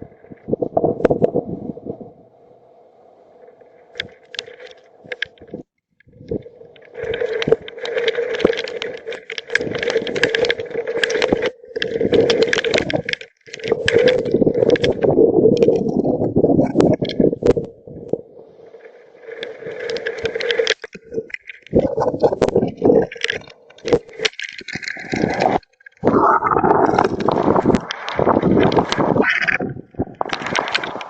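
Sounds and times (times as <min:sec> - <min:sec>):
strong wind gusts buffeting microphone: 0:00.0 - 0:02.2, 0:25.1 - 0:31.0.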